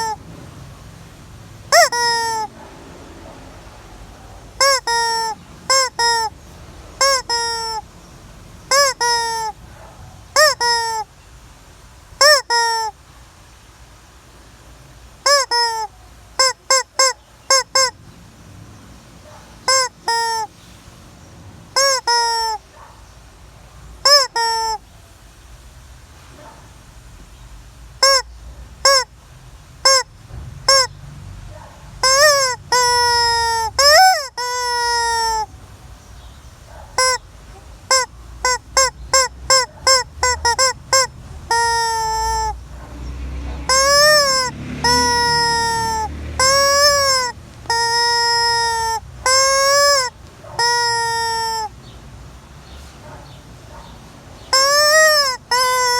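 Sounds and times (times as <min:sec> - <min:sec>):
chicken calling harshly: 0:00.0 - 0:00.2, 0:01.7 - 0:02.7, 0:04.5 - 0:07.9, 0:08.6 - 0:11.2, 0:12.2 - 0:13.0, 0:15.2 - 0:18.0, 0:19.7 - 0:20.5, 0:21.8 - 0:22.8, 0:24.0 - 0:24.9, 0:28.0 - 0:29.1, 0:29.8 - 0:30.1, 0:30.7 - 0:31.0, 0:32.0 - 0:35.6, 0:36.6 - 0:42.8, 0:43.4 - 0:51.8, 0:54.4 - 0:55.9.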